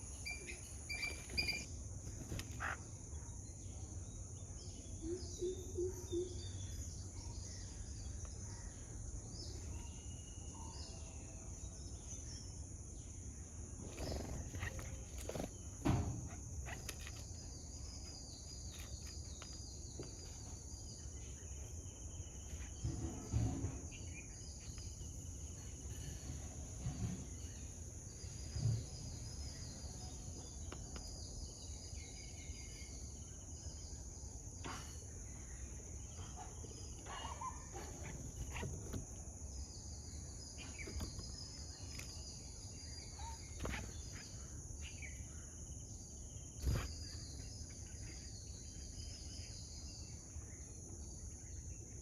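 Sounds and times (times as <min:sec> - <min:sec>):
bird chirps: 0:00.0 - 0:03.8, 0:04.6 - 0:12.5, 0:27.0 - 0:51.9
insects droning: 0:00.0 - 0:52.0.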